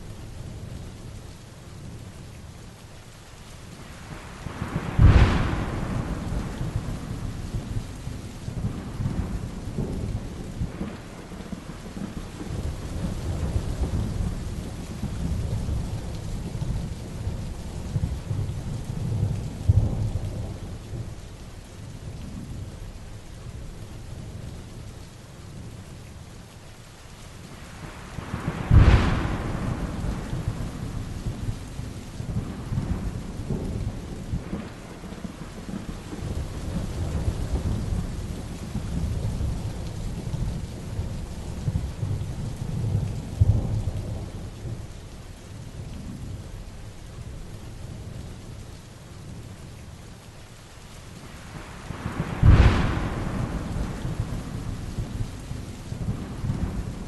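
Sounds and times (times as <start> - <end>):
heavy rain falling: 0.0 - 57.0
low rolling thunder: 4.0 - 21.4, 27.5 - 48.6, 51.2 - 57.0
sharp thunderclaps: 4.4 - 16.2, 28.2 - 40.6, 51.6 - 57.0.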